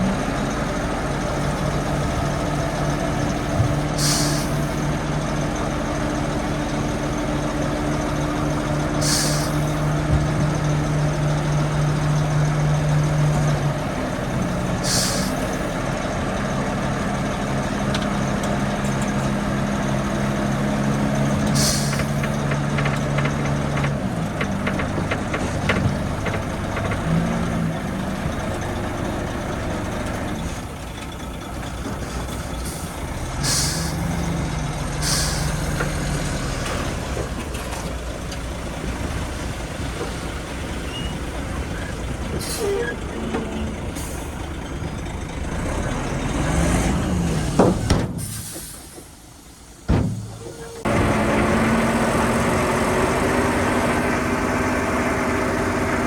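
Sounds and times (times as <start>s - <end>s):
diesel machinery engine running: 0.0s - 56.0s
rapid clatter: 22.0s - 27.4s.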